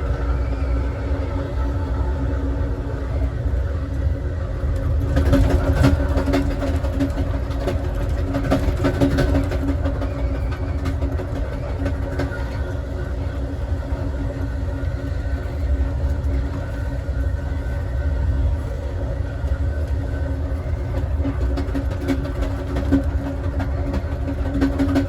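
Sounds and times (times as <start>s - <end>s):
train rumble: 0.0s - 25.0s.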